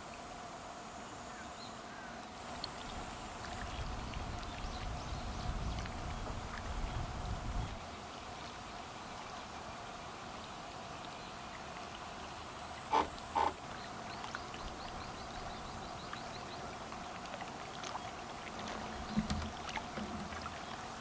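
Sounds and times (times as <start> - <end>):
insect buzz: 12.8 - 13.9
short loud pitched calls: 12.9 - 13.6.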